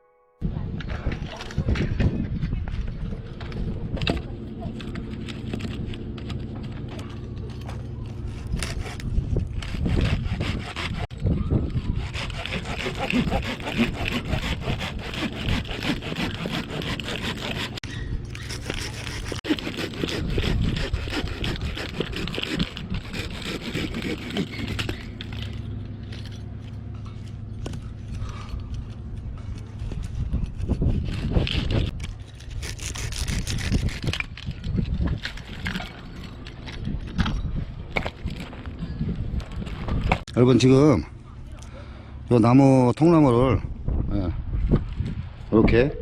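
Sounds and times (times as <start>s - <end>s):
low hum: 0.4s - 46.0s
hand saw cutting wood: 4.7s - 26.4s, 29.4s - 36.5s.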